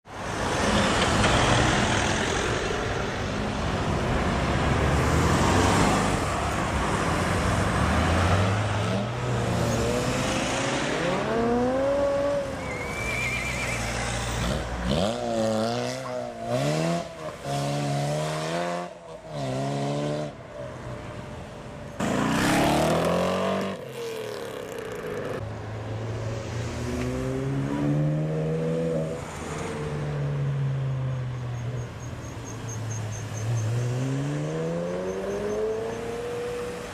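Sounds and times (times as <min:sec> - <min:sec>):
car engines revving through gears: 0:07.2 - 0:12.4, 0:13.6 - 0:20.4, 0:22.0 - 0:25.4, 0:32.5 - 0:36.9.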